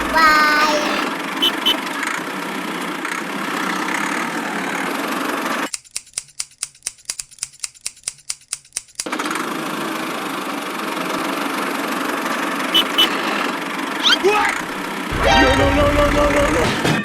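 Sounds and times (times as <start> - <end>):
rapid even clicking: 5.7 - 9.4.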